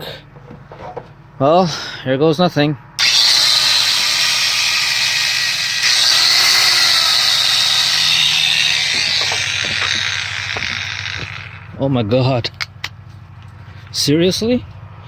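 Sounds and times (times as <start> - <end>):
angle grinder motor whir: 3.0 - 12.2.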